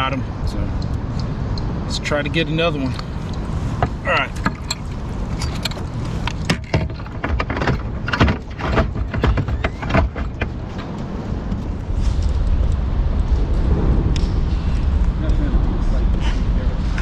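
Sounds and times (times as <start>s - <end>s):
fishing gear clicking and rattling: 2.9s - 11.1s
low rumble: 10.3s - 17.0s.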